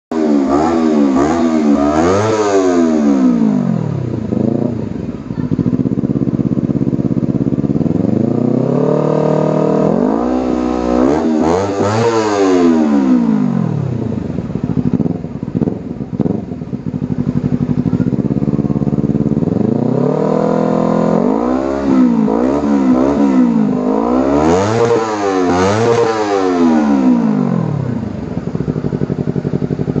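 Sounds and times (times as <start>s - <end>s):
motorcycle engine revving: 0.1s - 30.0s.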